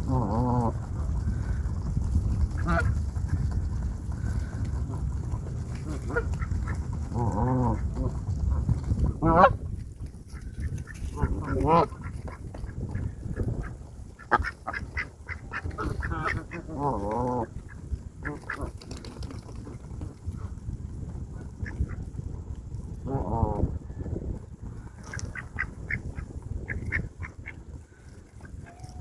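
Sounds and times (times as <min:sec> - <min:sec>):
waterfowl honking: 0:10.6 - 0:17.0.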